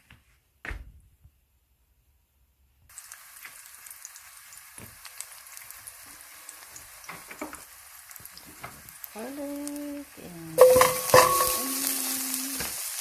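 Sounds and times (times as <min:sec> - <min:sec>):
pan sizzling: 0:02.9 - 0:13.0.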